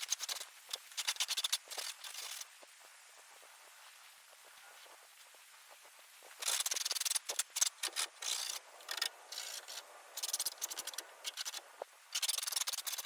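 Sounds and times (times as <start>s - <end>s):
hand file scraping metal: 6.4s - 11.6s, 12.2s - 13.0s.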